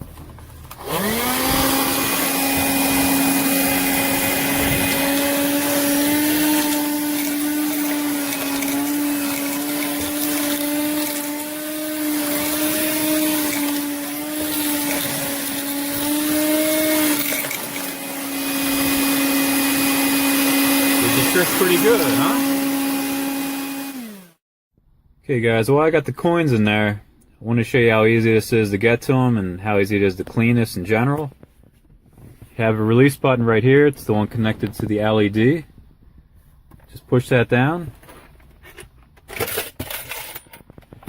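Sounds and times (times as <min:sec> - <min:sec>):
vacuum cleaner motor whine: 0:00.7 - 0:24.4.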